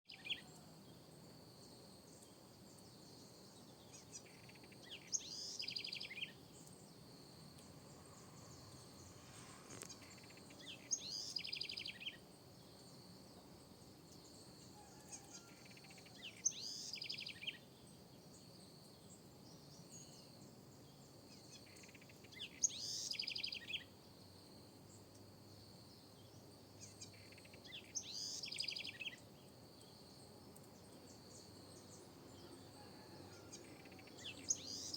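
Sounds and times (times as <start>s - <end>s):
wren singing with fast trill: 10.1s - 12.2s.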